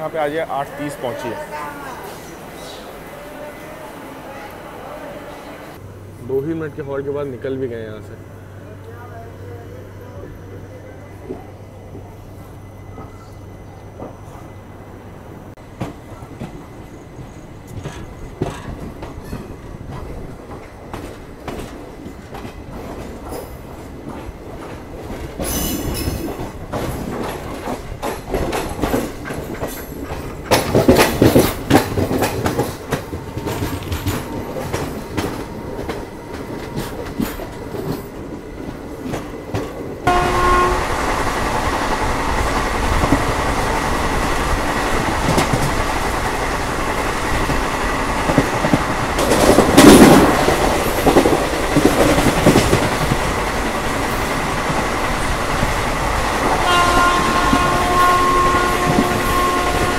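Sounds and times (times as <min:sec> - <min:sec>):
train running rush: 0:00.0 - 0:59.9
train wheels clicking over rail joints: 0:15.7 - 0:59.9.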